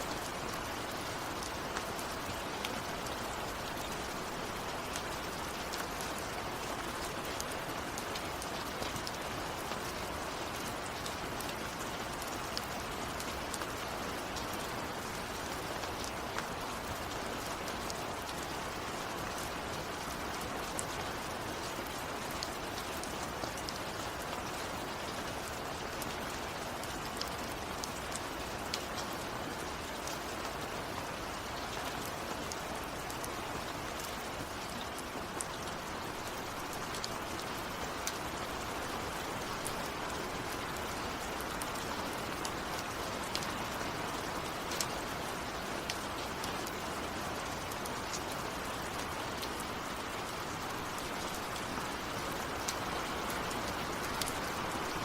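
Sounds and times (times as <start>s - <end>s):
raindrops ticking close by: 0.0s - 55.0s
steady rain falling: 0.0s - 55.0s.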